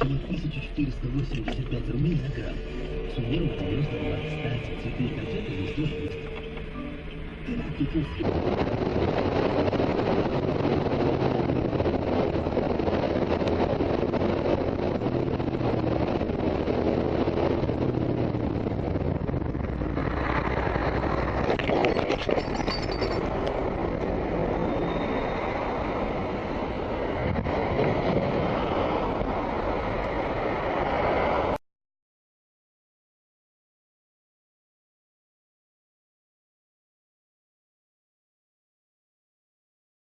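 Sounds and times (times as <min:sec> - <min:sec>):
vehicle engine and road noise: 0:00.0 - 0:31.6.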